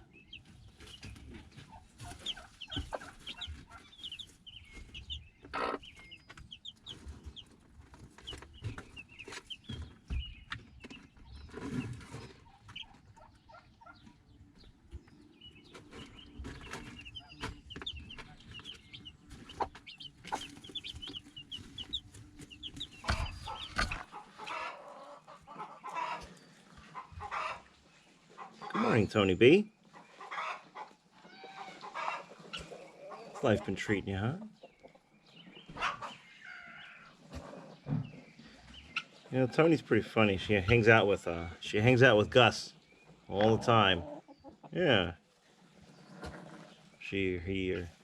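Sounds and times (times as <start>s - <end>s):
chickens clucking: 0.0s - 48.0s
knocks and rustles: 15.7s - 24.1s.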